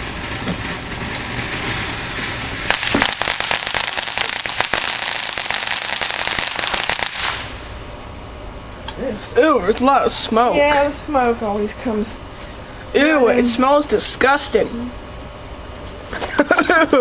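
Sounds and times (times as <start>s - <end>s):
firework crackling pops: 0.0s - 7.7s
firework hissing: 0.0s - 7.9s.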